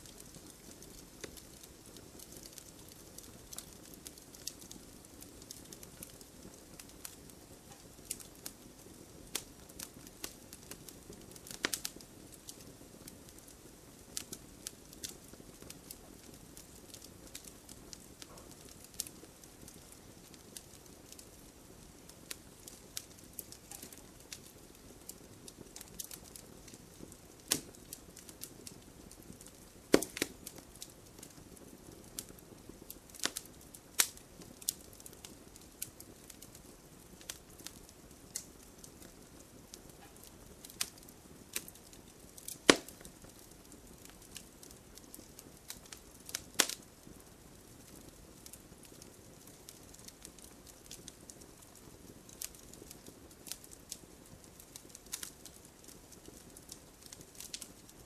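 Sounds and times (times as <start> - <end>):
sharp fire pops: 0.0 - 36.6, 39.7 - 46.8
soft steady hiss: 0.0 - 58.0
wood fire crackling: 0.0 - 58.0.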